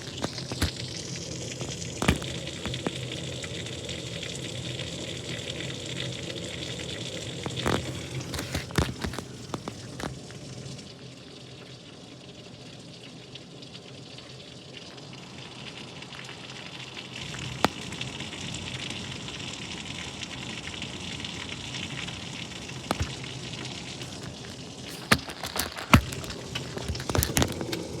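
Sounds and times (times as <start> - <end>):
rain hissing: 0.0 - 11.1, 15.1 - 28.0
drips tapping a hard surface: 17.3 - 18.6, 20.6 - 28.0.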